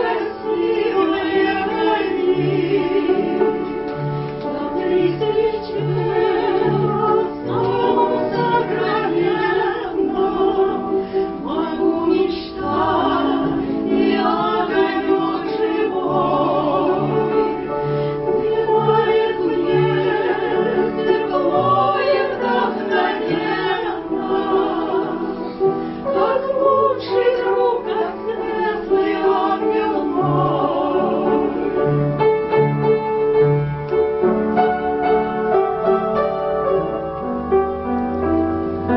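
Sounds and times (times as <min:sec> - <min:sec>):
instrumental accompaniment: 0:00.0 - 0:38.9
voices singing operatically: 0:04.4 - 0:17.7, 0:18.3 - 0:31.8.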